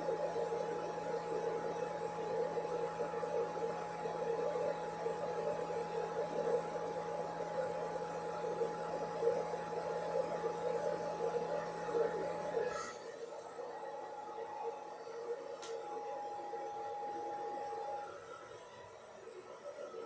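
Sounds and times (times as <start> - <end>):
hair dryer running: 12.2 - 20.0.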